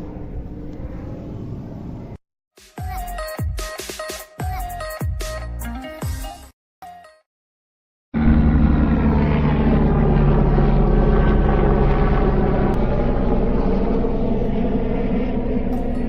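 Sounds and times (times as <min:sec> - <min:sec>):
jet airliner engines running: 0:00.0 - 0:02.2, 0:08.2 - 0:16.0.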